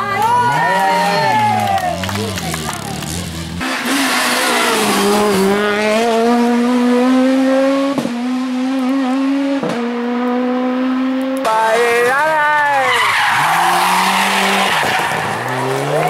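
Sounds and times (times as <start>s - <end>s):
rally car engine at high revs: 0.0s - 16.0s.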